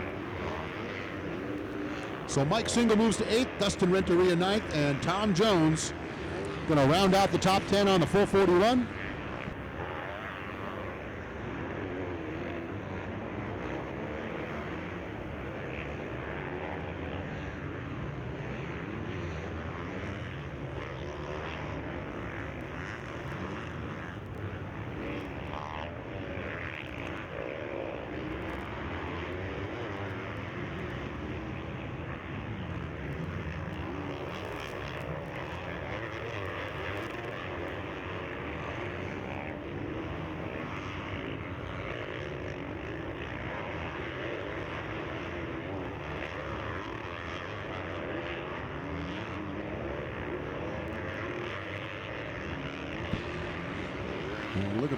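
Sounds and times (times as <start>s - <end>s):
motocross bike engines revving: 0.0s - 9.7s, 52.2s - 54.9s.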